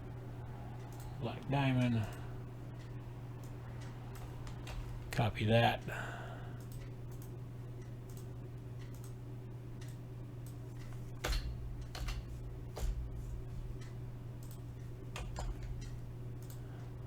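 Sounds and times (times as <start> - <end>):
steady low hum: 0.0 - 17.0
keyboard and mouse clicks: 8.1 - 9.2, 9.8 - 16.6.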